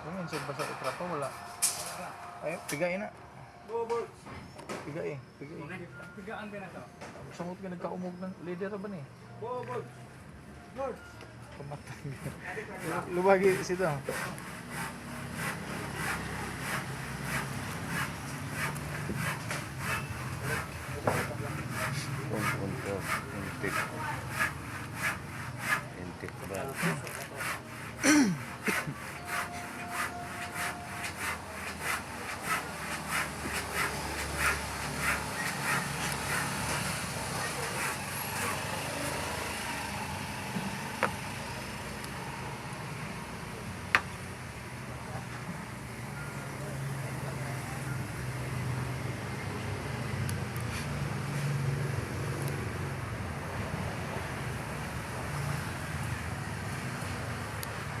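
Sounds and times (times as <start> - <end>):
hand scraping engine part: 12.2 - 39.3.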